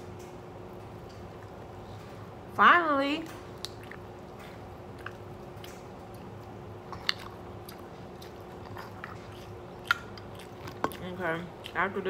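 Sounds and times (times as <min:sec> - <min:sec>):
faint steady hum: 0:00.0 - 0:12.0
chewing crab legs: 0:03.6 - 0:12.0.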